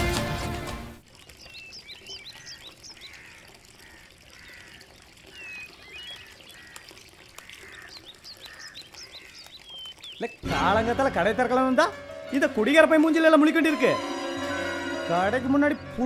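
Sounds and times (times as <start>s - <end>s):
music: 0.0s - 1.0s, 10.4s - 16.0s
birds chirping: 1.0s - 16.0s.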